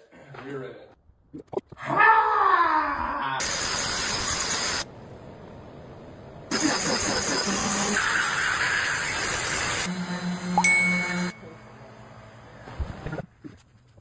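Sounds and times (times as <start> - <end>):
power tool working wood: 6.5 - 13.1.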